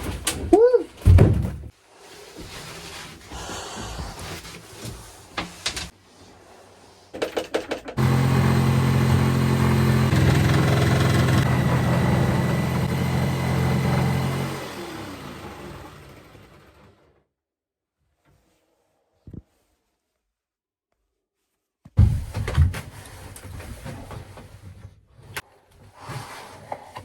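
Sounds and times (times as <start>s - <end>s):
power tool whining: 8.0s - 17.0s.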